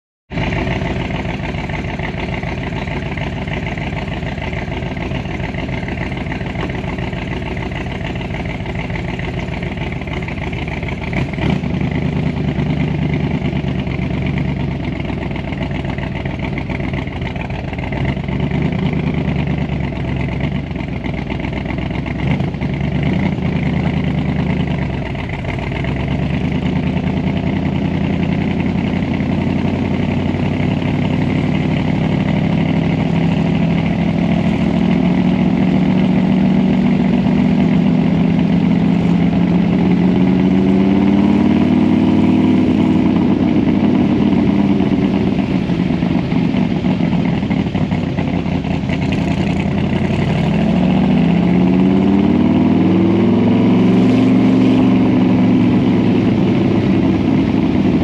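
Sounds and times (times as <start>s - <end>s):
car engine running: 0.3s - 58.0s.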